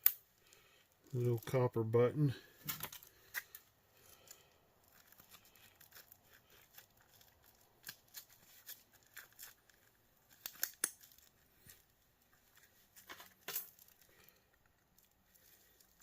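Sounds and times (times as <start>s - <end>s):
hand tools clicking and snipping: 0.0s - 0.2s, 10.3s - 11.2s
sharp plastic snaps: 0.0s - 0.2s, 10.3s - 11.3s.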